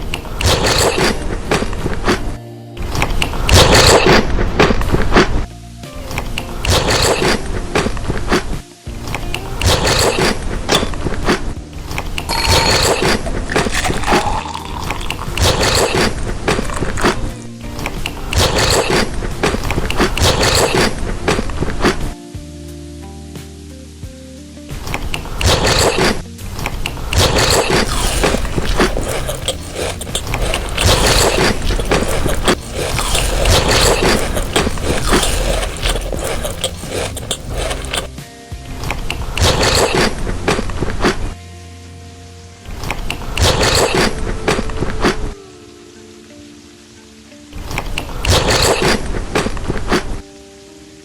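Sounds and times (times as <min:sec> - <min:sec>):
chocolate being bitten and chewed: 0:11.9 - 0:17.2, 0:27.2 - 0:38.1.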